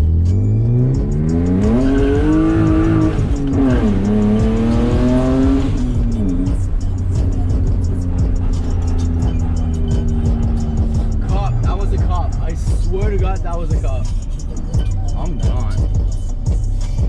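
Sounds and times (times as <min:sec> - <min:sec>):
car engine accelerating hard: 0:00.0 - 0:14.8.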